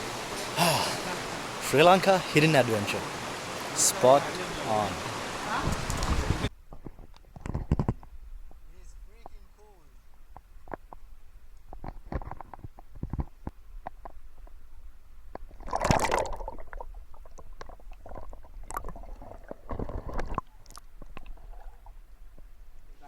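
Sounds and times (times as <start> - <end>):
barefoot footsteps in stream: 0.0 - 8.6, 10.1 - 23.0
water splash: 15.5 - 21.5.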